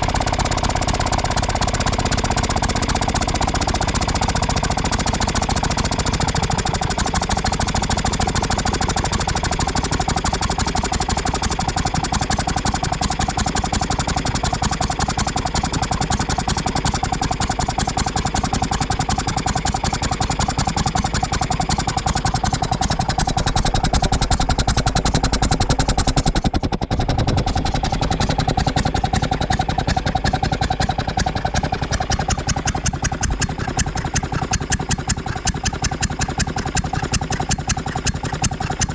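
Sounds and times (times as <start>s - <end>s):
air compressor engine running: 0.0s - 38.9s.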